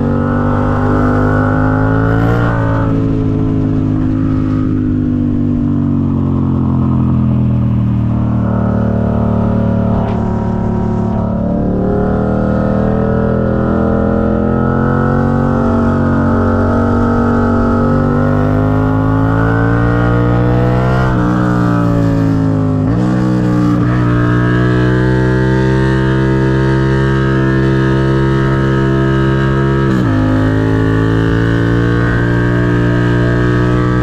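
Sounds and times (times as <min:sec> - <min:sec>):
motorcycle engine accelerating: 0:00.0 - 0:34.0.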